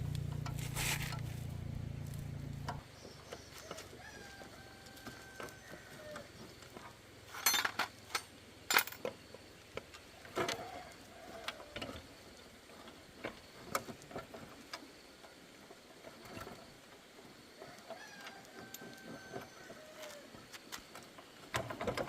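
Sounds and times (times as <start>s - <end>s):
metal tools clinking and knocking: 7.3s - 9.1s.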